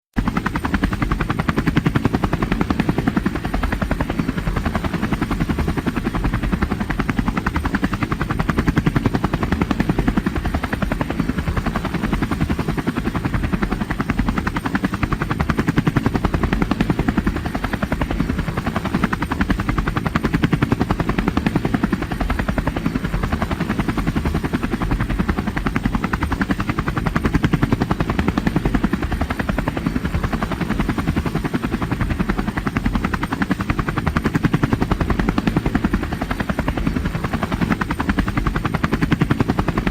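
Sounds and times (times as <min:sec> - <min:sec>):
helicopter rotor chopping: 0:00.2 - 0:39.9.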